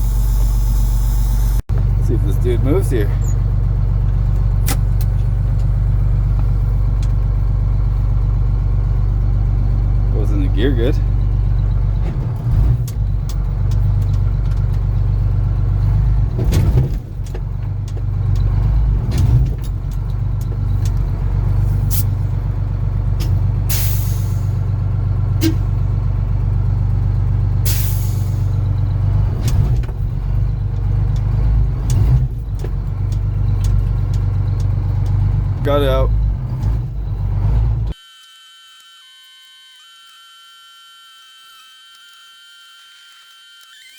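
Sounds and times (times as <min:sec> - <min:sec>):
truck diesel engine running: 0:00.0 - 0:38.0
air brake hisses: 0:23.7 - 0:24.6, 0:27.7 - 0:28.6.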